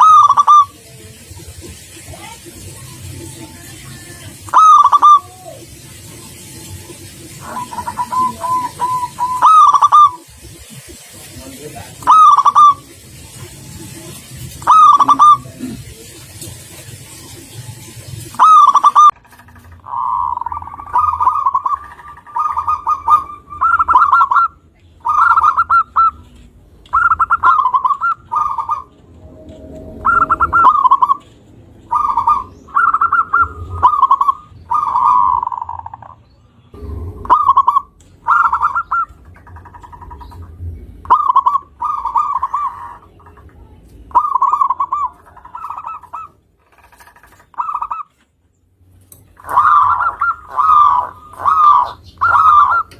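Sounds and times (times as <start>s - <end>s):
dove cooing: 0.0s - 2.4s, 4.3s - 16.2s, 17.0s - 29.0s, 29.9s - 36.2s, 36.8s - 48.1s, 49.4s - 52.9s.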